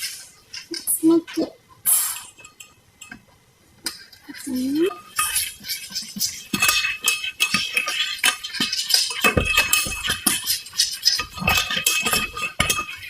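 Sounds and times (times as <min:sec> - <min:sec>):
utensils and dishes clinking: 0:02.1 - 0:03.2, 0:03.8 - 0:13.0.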